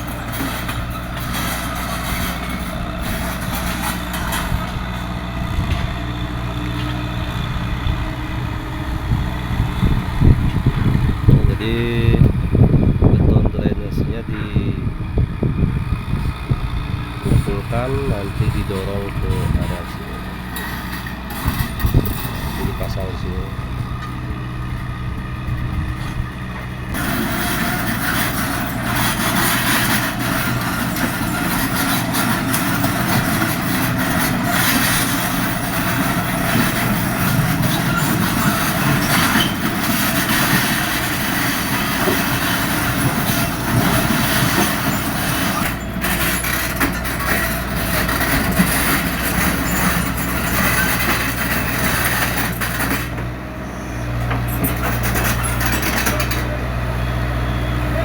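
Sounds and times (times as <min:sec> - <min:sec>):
diesel engine running: 0:00.0 - 0:58.0
excavator rough working noise: 0:00.0 - 0:58.0.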